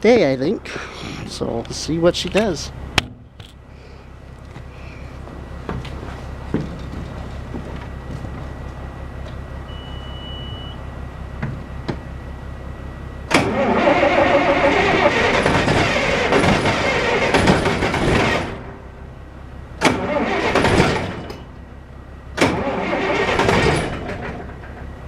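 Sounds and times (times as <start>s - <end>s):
short beep: 9.7s - 10.9s
starter cranking diesel engine: 13.1s - 25.0s.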